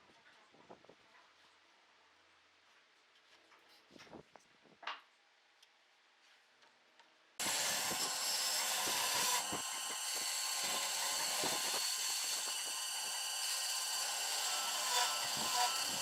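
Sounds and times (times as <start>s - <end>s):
woodworking power tool running: 7.4s - 16.0s.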